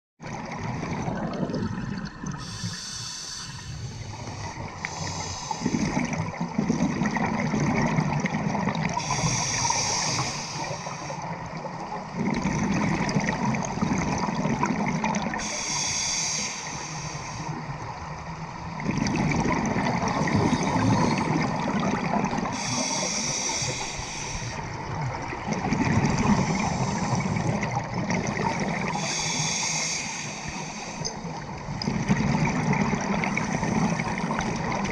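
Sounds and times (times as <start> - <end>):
bubbles gurgling on exhale: 0.2 - 2.9, 3.6 - 15.6, 18.7 - 29.6, 31.2 - 34.9
regulator hiss on inhale: 2.4 - 6.1, 9.0 - 11.3, 15.4 - 17.6, 22.5 - 24.6, 26.3 - 27.5, 28.9 - 31.3.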